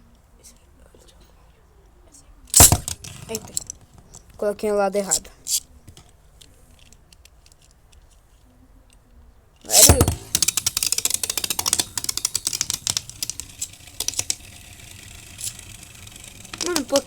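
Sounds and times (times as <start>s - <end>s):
spinning top rattling clicks: 2.5s - 4.4s, 9.7s - 17.0s
spinning top launcher whirring zip: 2.6s - 3.7s, 9.7s - 17.0s.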